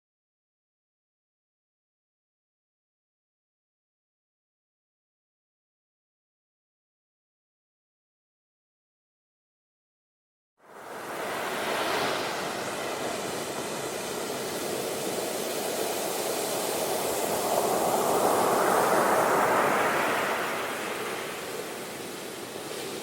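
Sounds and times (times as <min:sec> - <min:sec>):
sea waves washing ashore: 0:10.6 - 0:23.0.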